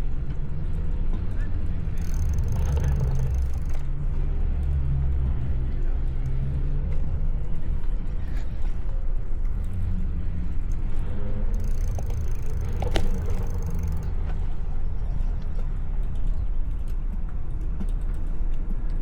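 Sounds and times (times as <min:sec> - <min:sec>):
road traffic: 0:00.0 - 0:16.0
sharp click: 0:02.0 - 0:03.8, 0:11.6 - 0:14.1.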